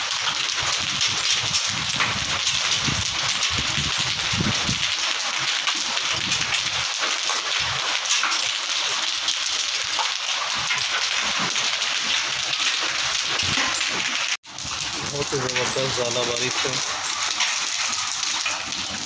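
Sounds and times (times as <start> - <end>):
hail ticking on tiles: 0.0 - 19.0
heavy rain hiss: 14.1 - 19.0.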